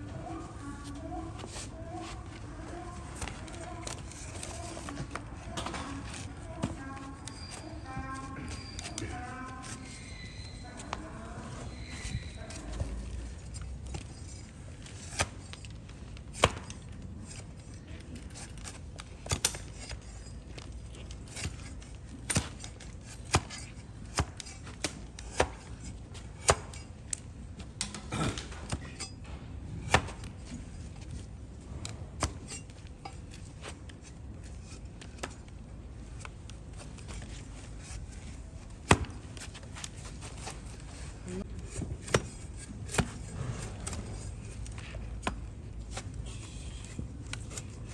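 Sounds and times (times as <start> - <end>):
hoof trimming chopping knocks: 11.9 - 17.4, 18.2 - 27.2, 27.8 - 30.6, 31.7 - 35.5, 36.2 - 46.1.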